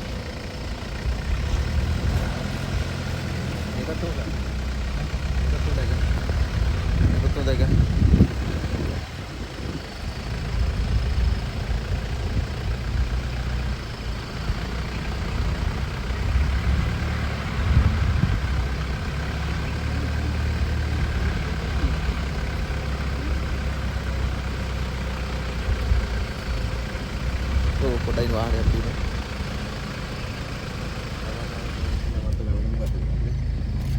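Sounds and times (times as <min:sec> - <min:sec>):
jeep engine rumbling: 0:00.0 - 0:33.9.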